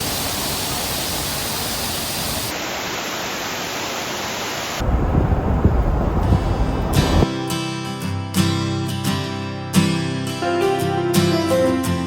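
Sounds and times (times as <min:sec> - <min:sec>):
waterfall rushing: 0:00.0 - 0:07.2.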